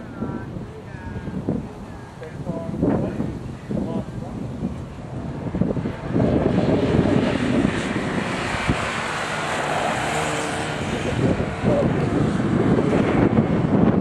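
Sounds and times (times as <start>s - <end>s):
race car engine at high revs: 0.0s - 14.0s.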